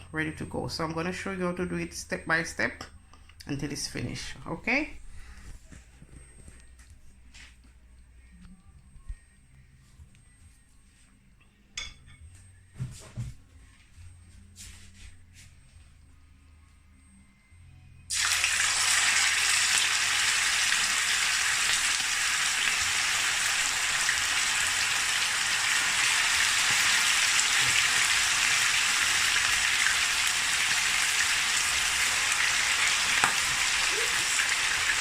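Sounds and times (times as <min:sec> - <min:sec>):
chicken frying in hot oil: 0:18.1 - 0:35.0.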